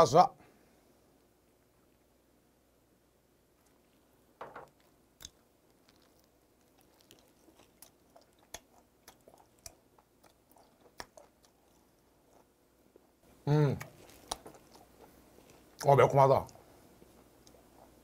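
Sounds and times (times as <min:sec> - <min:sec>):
person chewing with wet clicks: 0:04.7 - 0:13.1, 0:13.8 - 0:18.0.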